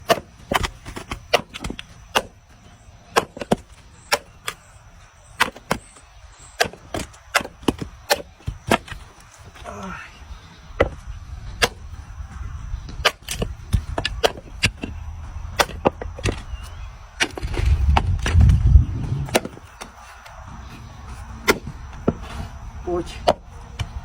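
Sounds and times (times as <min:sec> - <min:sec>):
wood knocking and cracking: 0:00.0 - 0:02.4, 0:06.6 - 0:09.3, 0:17.2 - 0:20.0
low rumble: 0:16.8 - 0:19.6.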